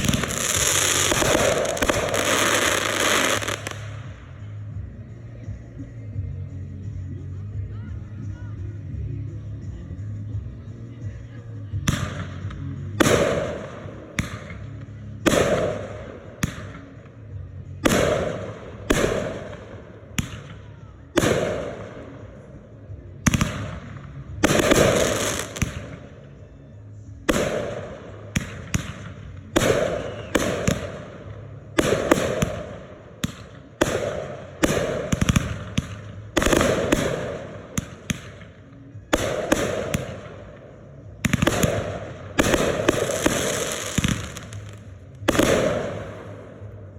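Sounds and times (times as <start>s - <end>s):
fireworks bangs: 0.0s - 4.2s, 23.3s - 26.0s, 27.3s - 38.5s, 39.1s - 46.9s.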